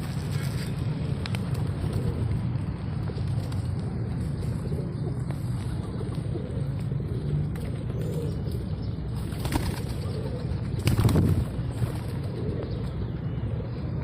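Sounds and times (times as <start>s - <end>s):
pigeons flapping wings: 0.0s - 7.9s, 9.1s - 12.4s
steady low rumble: 0.0s - 14.0s.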